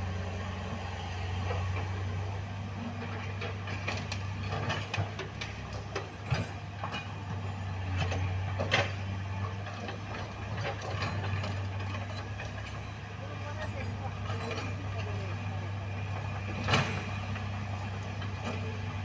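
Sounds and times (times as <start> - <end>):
heavy engine running: 0.0 - 19.0
sharp clanks and knocks: 2.9 - 12.9, 16.4 - 18.8.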